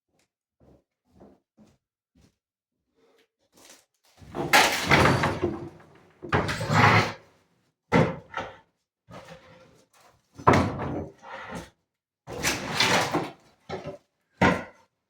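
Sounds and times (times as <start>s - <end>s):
banging and scraping: 4.3s - 7.2s.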